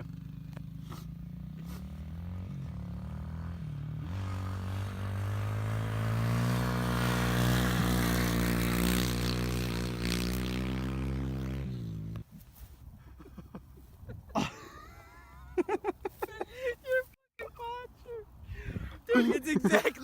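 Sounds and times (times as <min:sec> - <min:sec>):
small motorbike engine revving: 0:00.0 - 0:12.2.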